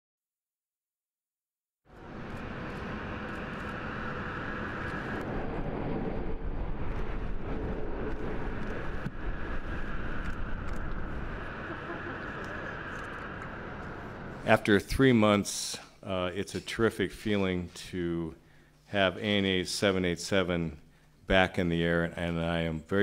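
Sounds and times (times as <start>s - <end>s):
jet engines roaring: 1.9s - 15.2s.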